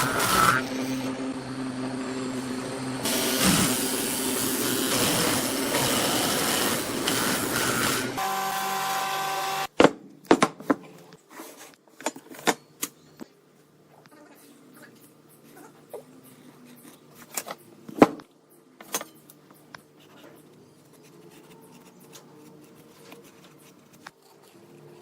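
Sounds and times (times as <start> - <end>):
steady hum: 0.0 - 8.2
power tool running: 0.0 - 9.7.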